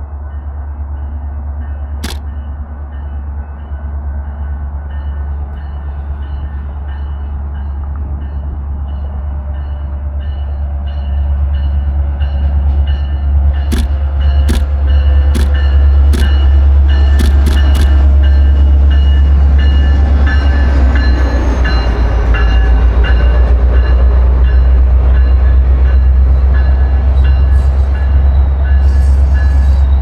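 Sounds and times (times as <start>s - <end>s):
train rumbling past: 0.0s - 30.0s
wheels clicking over rails: 2.0s - 2.4s, 13.7s - 18.4s.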